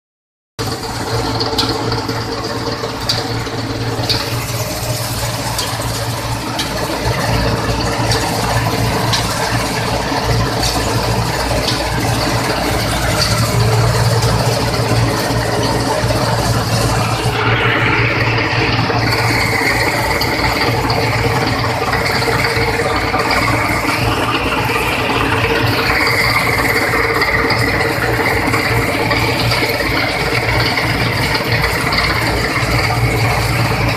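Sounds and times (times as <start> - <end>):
combine harvester rattling: 0.6 - 33.9
high machine whine: 0.6 - 33.9.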